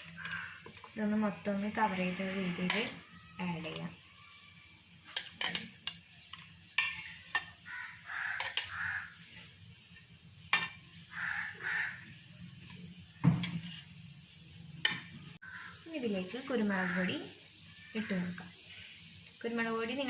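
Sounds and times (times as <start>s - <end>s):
light sizzle: 0.0s - 20.0s
spatula scraping a pan: 1.8s - 3.1s, 5.1s - 9.6s, 12.6s - 14.0s.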